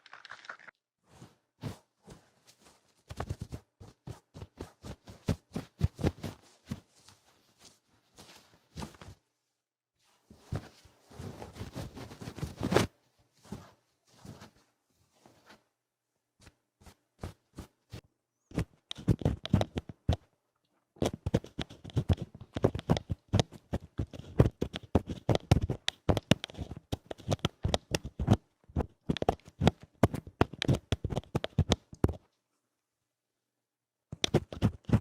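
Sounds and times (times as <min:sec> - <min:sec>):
scratching on microphone: 0:10.4 - 0:14.6, 0:16.8 - 0:20.2, 0:21.0 - 0:32.2, 0:34.2 - 0:35.0.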